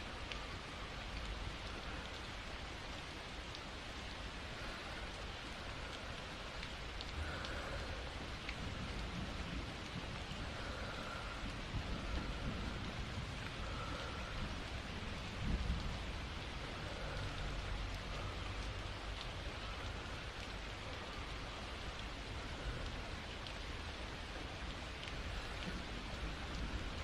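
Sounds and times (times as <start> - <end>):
steady rain: 0.0 - 27.0
thunder rumble: 7.2 - 20.3.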